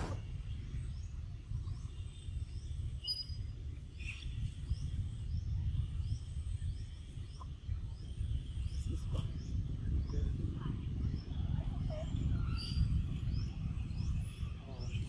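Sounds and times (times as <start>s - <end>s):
low uneven rumble: 0.0s - 2.8s
bird chirping: 0.0s - 10.3s.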